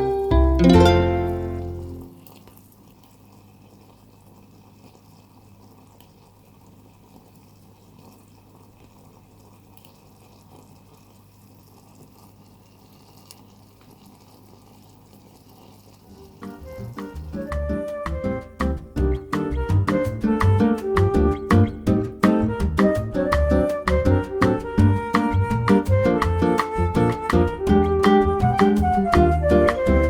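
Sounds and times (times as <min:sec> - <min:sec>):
pot simmering and bubbling: 0:00.0 - 0:30.0
small ticks: 0:09.7 - 0:11.1.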